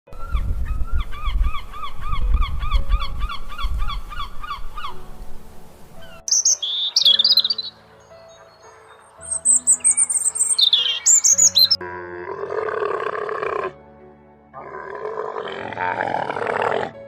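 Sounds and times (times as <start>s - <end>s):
high quick bird chirps: 6.3s - 11.8s.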